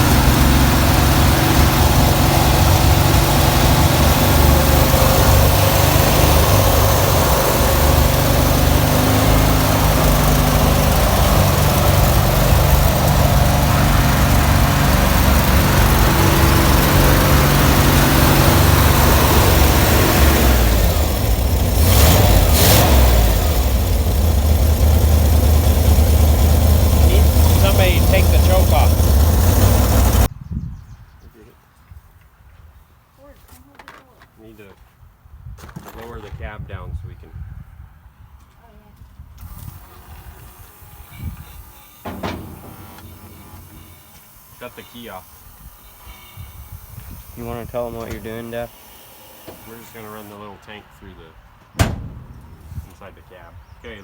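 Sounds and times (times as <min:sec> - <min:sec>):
truck engine running: 0:00.0 - 0:30.3, 0:40.7 - 0:45.9, 0:51.6 - 0:54.0.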